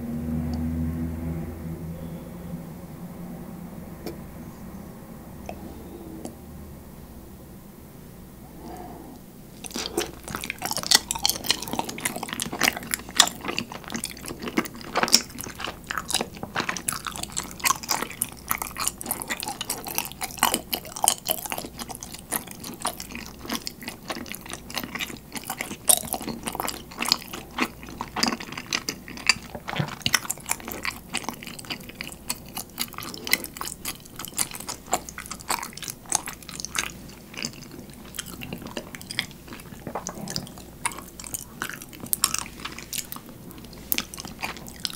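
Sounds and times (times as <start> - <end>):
person chewing with wet mouth clicks: 9.6 - 44.9.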